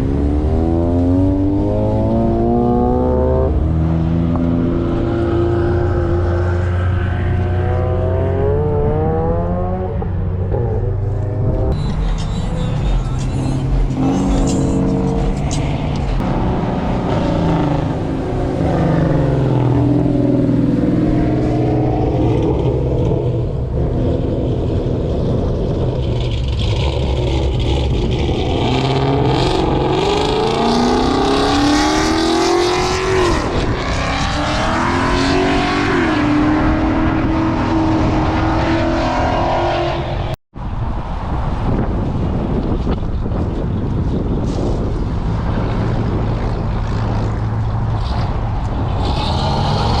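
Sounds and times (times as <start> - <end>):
car engines revving: 0.0 - 50.0.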